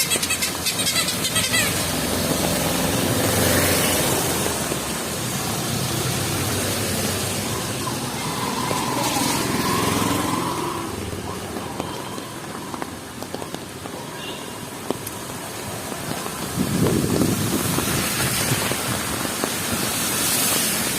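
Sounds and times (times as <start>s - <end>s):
wet traffic: 0.0s - 20.9s
heavy rain hissing: 0.5s - 20.9s.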